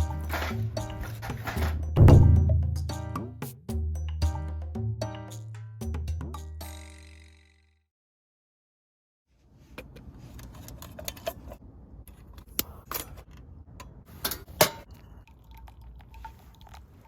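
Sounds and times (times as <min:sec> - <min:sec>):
sharp knocks: 0:02.0 - 0:03.2.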